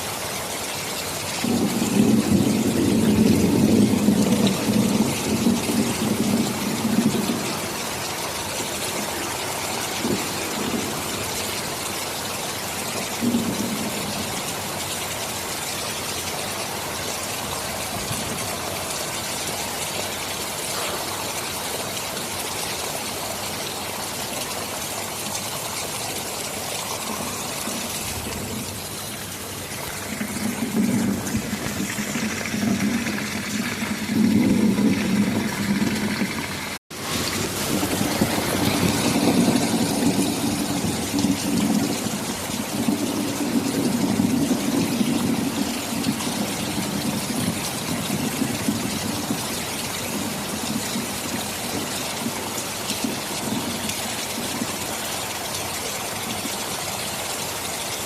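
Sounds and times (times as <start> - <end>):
heavy rain: 0.0 - 58.0
thunder rumbles: 1.4 - 12.2, 13.0 - 14.6, 26.4 - 54.8.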